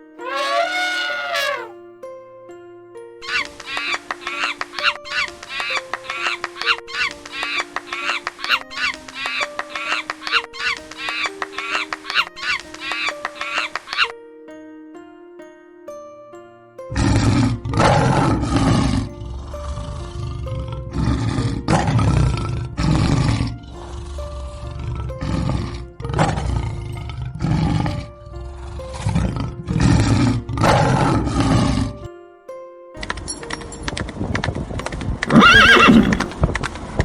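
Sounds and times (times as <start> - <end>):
background music: 0.0 - 37.0
lion roaring: 0.2 - 1.7, 16.9 - 32.0, 35.4 - 36.4.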